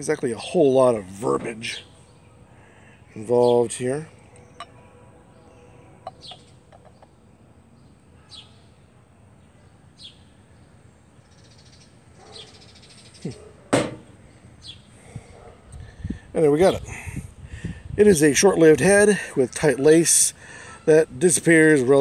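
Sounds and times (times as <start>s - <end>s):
high bird chirps: 6.1s - 7.1s
loud thump: 13.7s - 14.1s.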